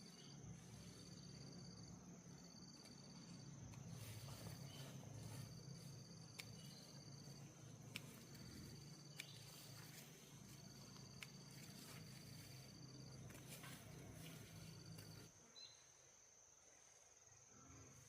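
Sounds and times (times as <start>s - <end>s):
insect steady high trill: 0.0s - 16.6s
faint sharp clicks: 9.1s - 9.4s.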